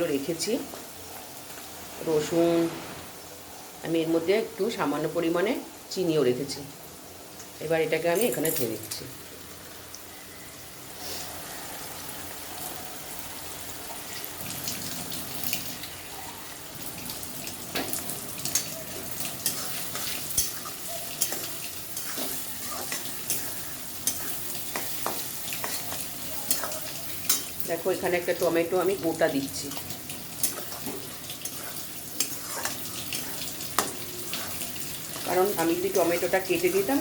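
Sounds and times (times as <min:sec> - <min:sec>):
onions frying in oil: 0:00.0 - 0:37.0
spatula scraping and knocking pan: 0:17.7 - 0:27.6, 0:29.7 - 0:36.2.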